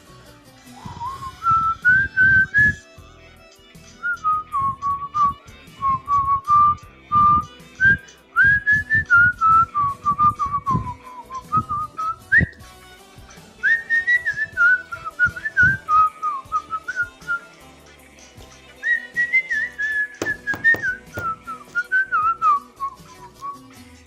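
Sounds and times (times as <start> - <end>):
person whistling a melody: 0.8 - 3.0, 4.0 - 12.7, 13.6 - 17.5, 18.8 - 23.8
low thumping percussion: 20.2 - 21.9.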